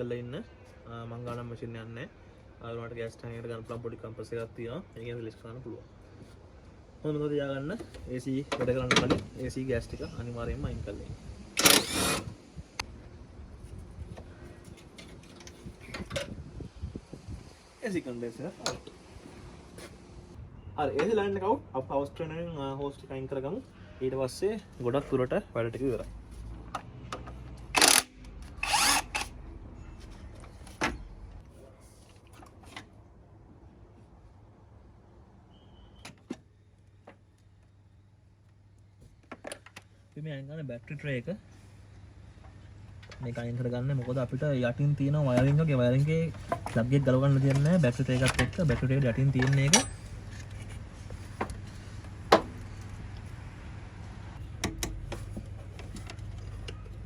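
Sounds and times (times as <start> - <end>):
tools and parts knocking and clicking: 54.5 - 57.0.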